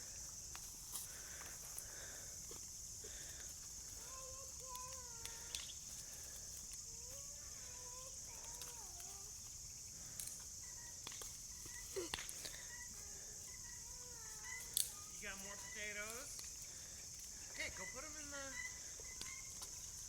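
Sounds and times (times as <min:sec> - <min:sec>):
steady high hiss: 0:00.0 - 0:20.0
poultry clucking: 0:17.6 - 0:19.7.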